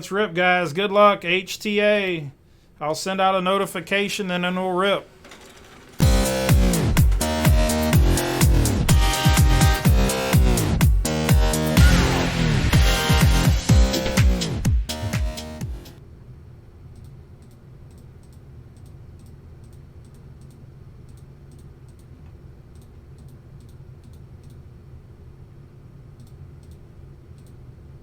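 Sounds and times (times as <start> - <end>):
steady low hum: 0.0 - 28.0
keyboard and mouse clicks: 5.2 - 7.8, 17.0 - 24.6, 26.2 - 27.6.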